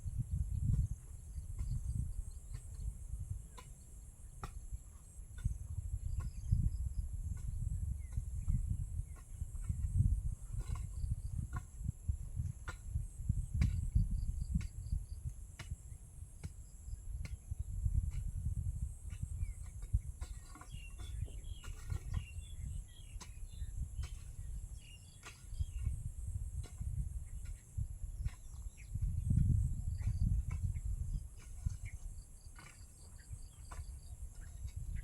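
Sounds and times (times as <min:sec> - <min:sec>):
bird chirps: 0:20.3 - 0:26.0.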